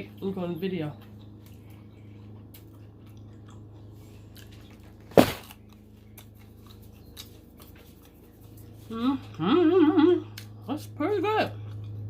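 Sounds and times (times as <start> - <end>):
steady low hum: 0.0 - 12.0
chewing fried shrimp: 0.9 - 10.7, 11.5 - 12.0
loud crunch: 4.4 - 7.7.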